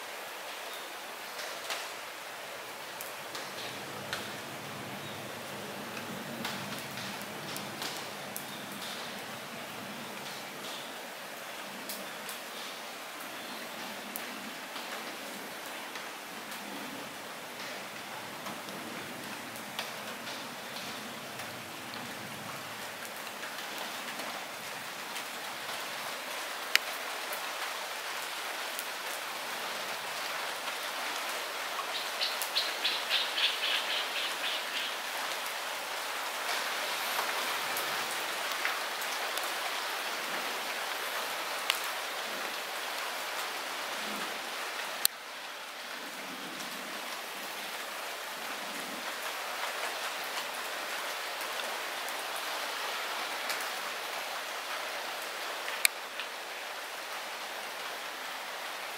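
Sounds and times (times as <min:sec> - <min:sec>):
light rain falling: 0:00.0 - 0:58.9.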